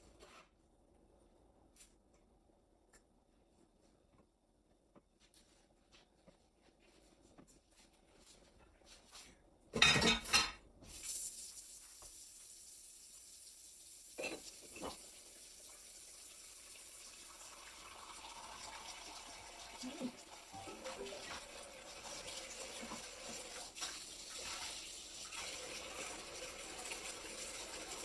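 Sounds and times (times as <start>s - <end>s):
dishes clattering in a sink: 9.7s - 10.6s, 14.2s - 15.1s, 20.5s - 26.1s
faucet water running: 10.8s - 28.0s.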